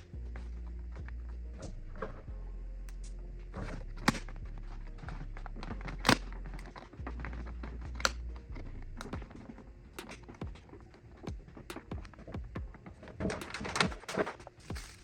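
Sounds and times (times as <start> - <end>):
low steady hum: 0.0 - 15.0
sharp clicks and knocks: 5.6 - 15.0.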